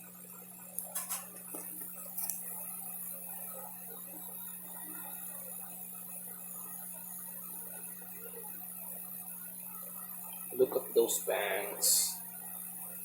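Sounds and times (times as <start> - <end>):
low hum and hiss: 9.6 - 13.0.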